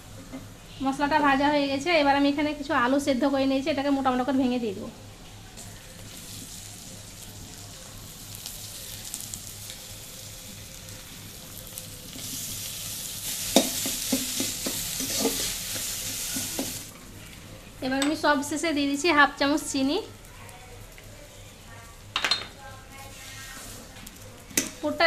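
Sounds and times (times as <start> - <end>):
spice paste sizzling in wok: 5.5 - 16.9
metal spatula scraping wok: 12.1 - 16.8.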